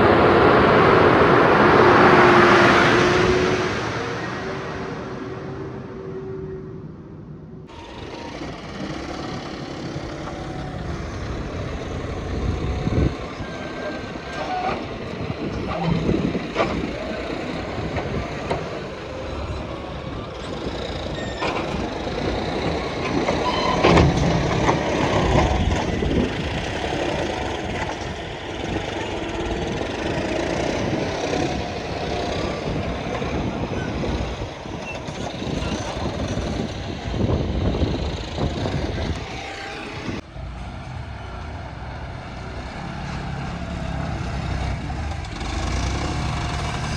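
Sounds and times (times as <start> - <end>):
diesel engines under load: 0.0 - 46.9
loud knocks and clanks: 20.5 - 28.2.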